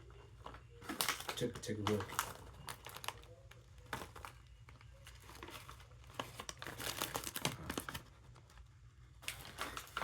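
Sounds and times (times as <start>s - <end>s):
paper bag crinkling: 0.4s - 3.3s, 5.0s - 8.4s, 9.2s - 10.0s.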